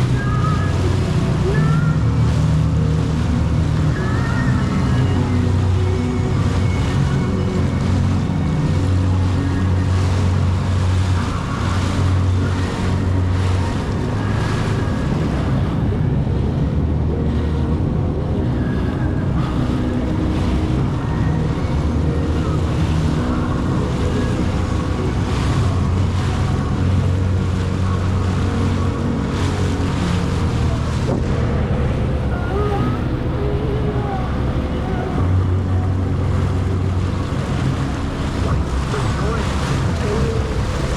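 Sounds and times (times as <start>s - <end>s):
jet ski engine running: 0.0s - 40.9s
wind buffeting microphone: 0.0s - 40.9s
water spray splashing: 36.0s - 40.9s.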